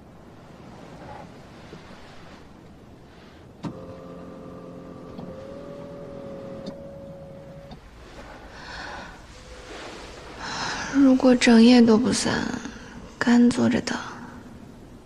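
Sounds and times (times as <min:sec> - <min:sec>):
small electric motor humming: 0:03.7 - 0:07.8
motor switch click: 0:04.9 - 0:06.9.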